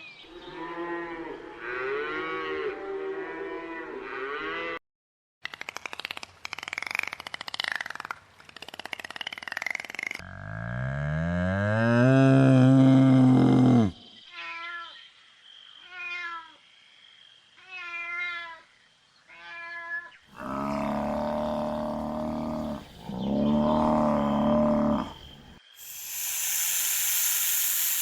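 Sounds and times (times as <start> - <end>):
long low animal call: 10.2 - 14.1, 20.3 - 26.2
cat meowing: 17.6 - 18.6
cow mooing: 20.4 - 25.2.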